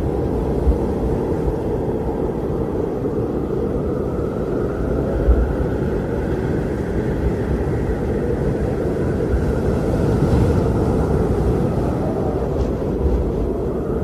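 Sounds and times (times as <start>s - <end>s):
strong wind blowing: 0.0s - 14.0s.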